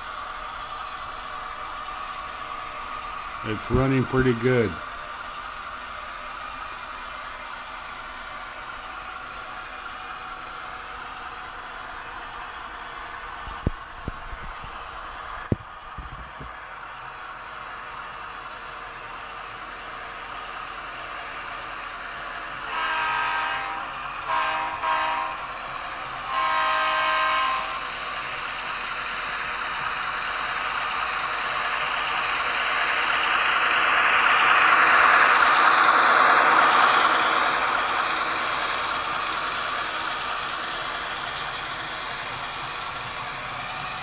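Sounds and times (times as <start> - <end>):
model train running: 0.0 - 44.0
model train horn blasts: 22.6 - 25.5, 26.2 - 27.9.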